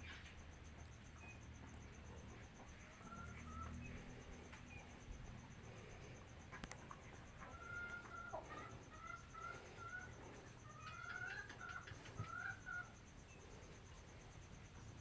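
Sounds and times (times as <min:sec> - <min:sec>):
chickens calling: 0:01.2 - 0:14.0.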